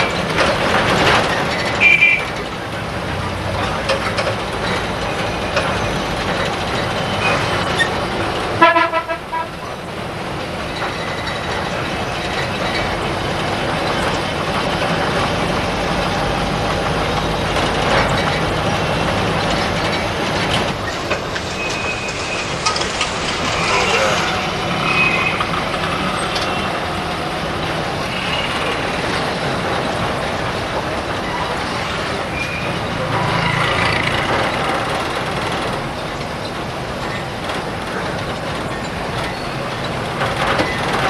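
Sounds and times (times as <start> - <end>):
passing vehicles: 0.0 - 41.0
people's voices: 20.2 - 29.2.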